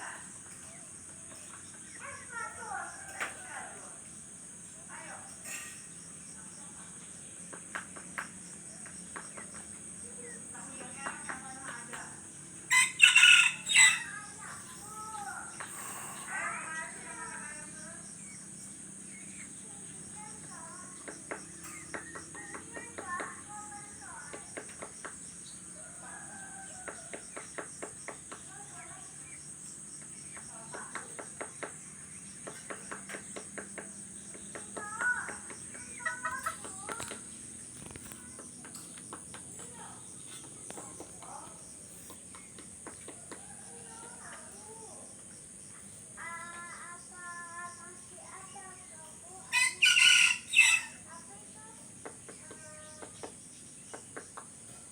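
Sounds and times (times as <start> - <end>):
crickets droning: 0.0 - 54.9
chickens calling: 12.6 - 17.4, 33.8 - 43.7, 49.5 - 51.2
rooster crowing: 12.7 - 14.2, 25.8 - 27.2, 49.5 - 51.0.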